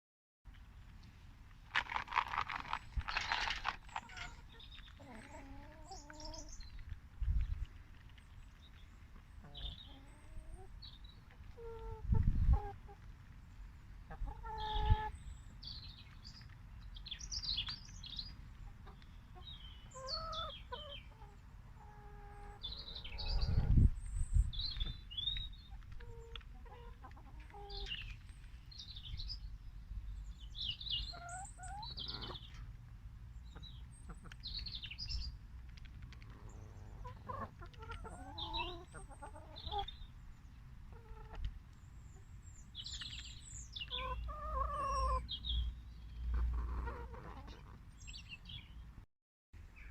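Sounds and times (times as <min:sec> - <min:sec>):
chickens clucking: 0:03.1 - 0:13.3, 0:14.0 - 0:15.2, 0:17.6 - 0:28.5, 0:31.0 - 0:32.8, 0:33.4 - 0:35.0, 0:35.7 - 0:45.4, 0:46.2 - 0:48.2.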